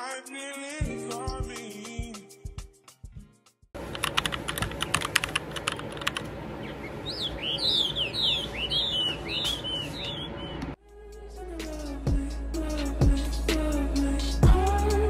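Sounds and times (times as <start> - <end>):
steady background noise: 3.8 - 10.8
sharp clicks: 4.0 - 6.4
bird singing falling chirps: 6.6 - 10.8.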